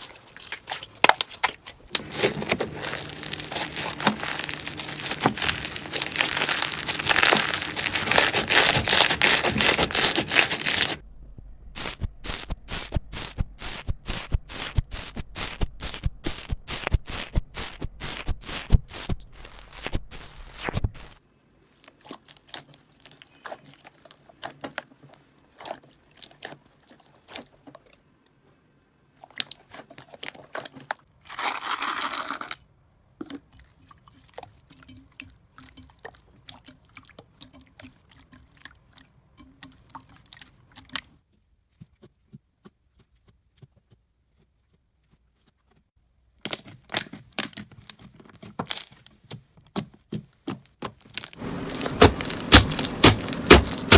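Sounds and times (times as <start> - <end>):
slime crackling and squishing: 0.0 - 11.0, 11.8 - 28.0, 51.0 - 53.9.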